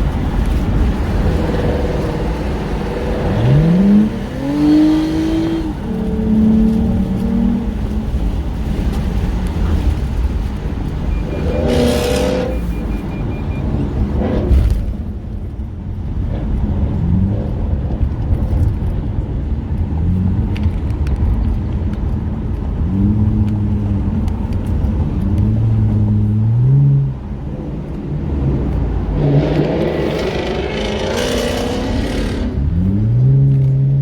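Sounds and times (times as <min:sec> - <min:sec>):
car engine revving through gears: 0:00.1 - 0:15.2, 0:22.8 - 0:34.0.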